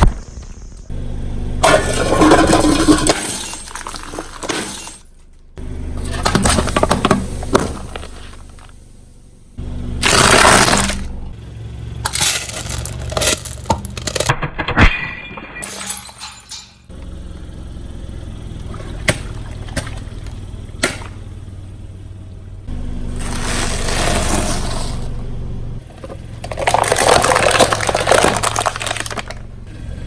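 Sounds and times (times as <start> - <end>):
car engine running: 0.6 - 14.6, 15.9 - 30.0
tyre crushing brittle objects: 10.0 - 11.1, 12.0 - 14.4, 25.9 - 29.4.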